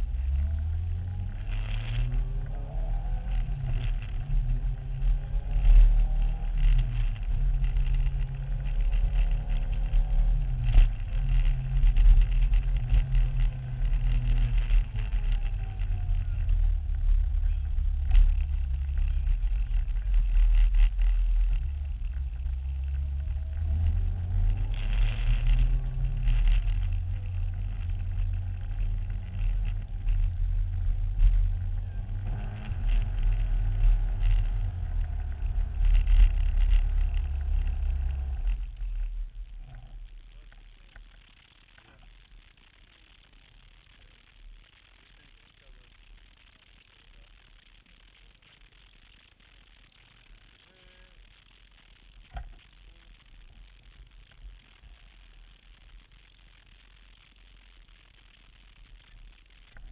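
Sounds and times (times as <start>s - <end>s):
motorbike engine revving: 0.0s - 40.0s.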